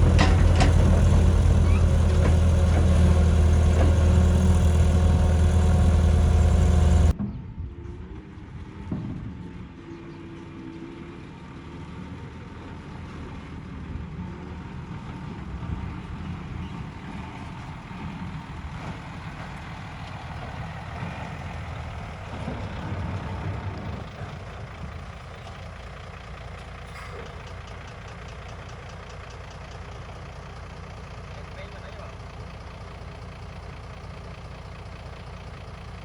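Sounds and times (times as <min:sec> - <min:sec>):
bulldozer diesel engine rumbling: 0:00.0 - 0:07.2, 0:11.9 - 0:36.0.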